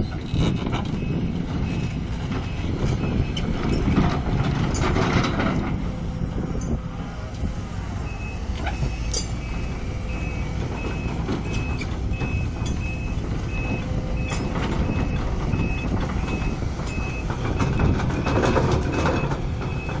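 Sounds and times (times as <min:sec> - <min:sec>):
diesel engine running: 0:00.0 - 0:20.0
excavator travel alarm beeps: 0:00.4 - 0:05.0, 0:08.0 - 0:20.0.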